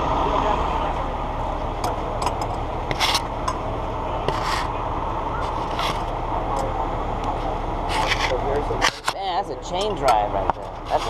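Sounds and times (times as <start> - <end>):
truck engine running: 0.0 - 11.0
short scrapes and clicks: 2.9 - 3.2.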